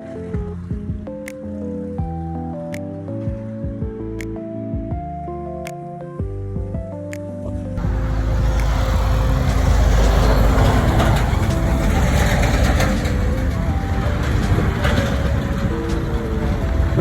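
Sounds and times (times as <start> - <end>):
light background music: 0.0 - 17.0
road vehicle rumble: 7.5 - 17.0.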